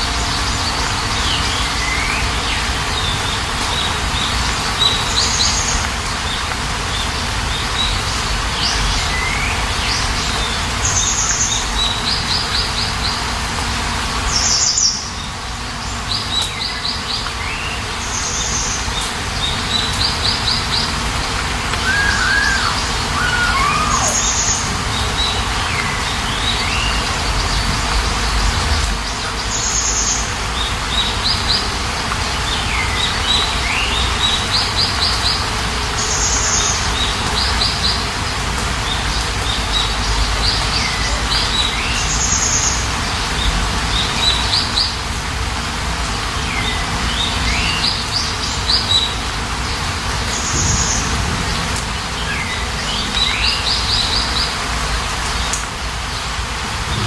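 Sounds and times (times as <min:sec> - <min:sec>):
rain hissing: 0:00.0 - 0:57.0
birds chirping and calling: 0:16.0 - 0:31.7.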